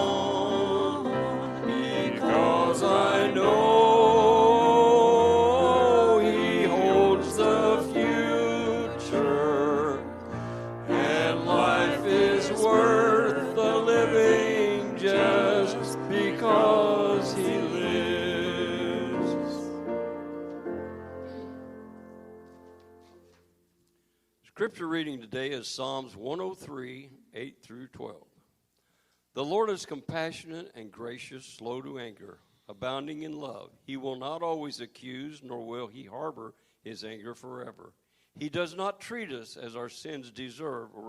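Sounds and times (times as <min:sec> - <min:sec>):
singing with vibrato: 0:00.0 - 0:19.7
instrumental accompaniment: 0:00.0 - 0:23.7.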